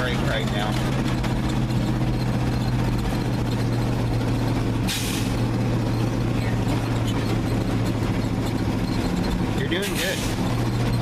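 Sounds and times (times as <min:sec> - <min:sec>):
truck engine running: 0:00.0 - 0:11.0
air brake hiss: 0:04.9 - 0:05.4.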